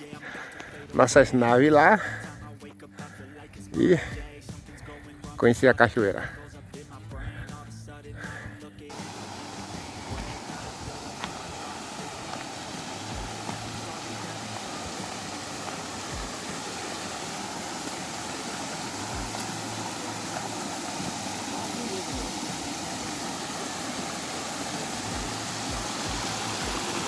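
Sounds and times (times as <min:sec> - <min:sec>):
waterfall rushing: 0:08.9 - 0:27.0
low thumps: 0:09.0 - 0:13.9, 0:18.9 - 0:19.9.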